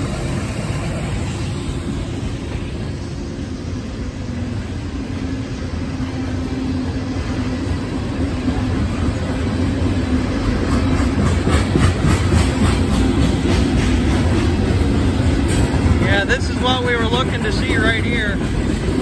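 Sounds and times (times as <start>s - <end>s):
train rumbling past: 0.0s - 19.0s
wheels clicking over rail joints: 7.6s - 19.0s.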